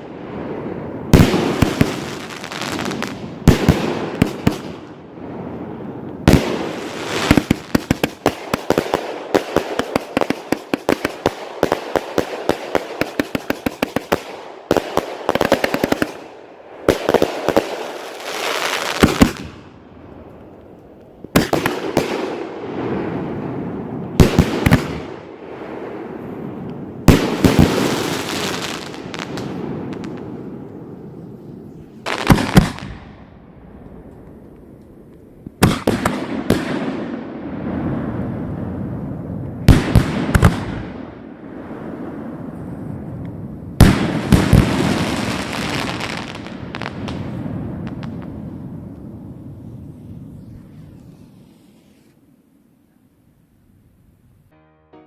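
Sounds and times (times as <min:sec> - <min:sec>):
firework shots and bangs: 0:00.0 - 0:05.0, 0:06.2 - 0:19.7, 0:21.2 - 0:26.0, 0:27.0 - 0:30.5, 0:32.0 - 0:33.3, 0:35.6 - 0:38.1, 0:39.6 - 0:41.2, 0:43.8 - 0:48.8
firework crackling: 0:00.0 - 0:52.5
firework hissing bursts: 0:49.7 - 0:52.2.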